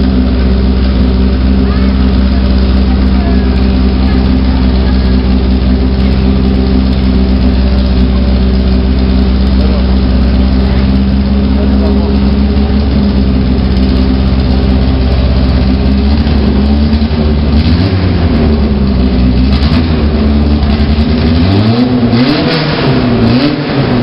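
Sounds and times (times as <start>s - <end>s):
race car engine idling and revving: 0.0s - 24.0s.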